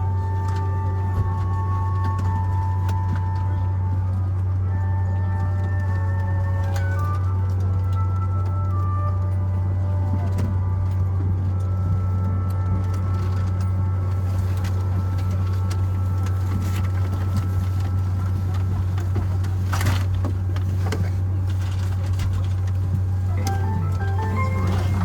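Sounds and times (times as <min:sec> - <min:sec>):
aircraft cabin hum: 0:10.0 - 0:25.0.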